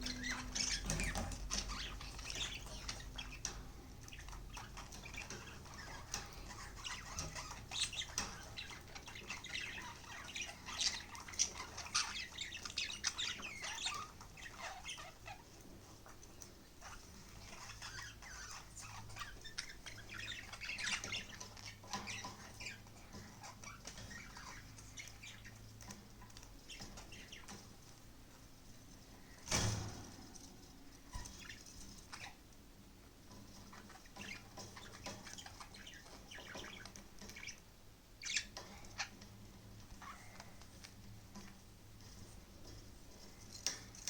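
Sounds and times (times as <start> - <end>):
budgerigars chirping: 0.0 - 16.2, 16.8 - 27.6, 31.1 - 32.4, 33.5 - 39.3.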